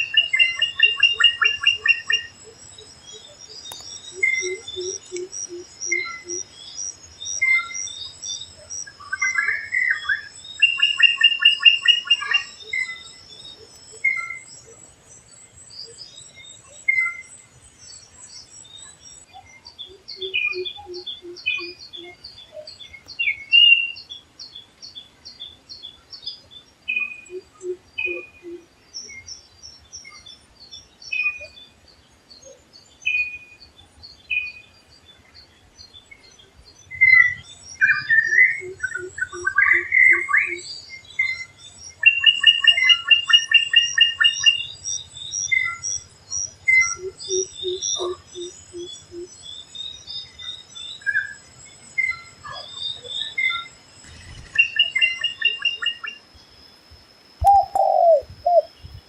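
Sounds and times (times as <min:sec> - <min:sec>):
high bird chirps and whistles: 0:54.4 - 0:56.2, 0:57.4 - 0:59.0
bird chattering trill: 0:57.4 - 0:58.8
low hooting bird notes: 0:57.4 - 0:58.8.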